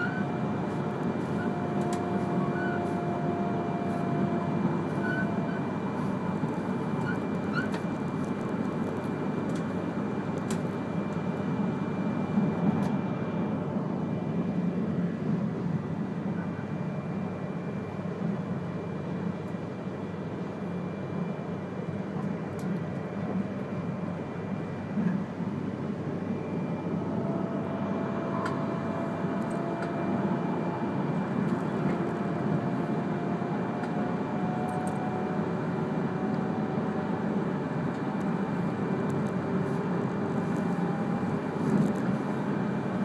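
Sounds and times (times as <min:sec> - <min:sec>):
train rumbling along track: 0:00.0 - 0:43.0.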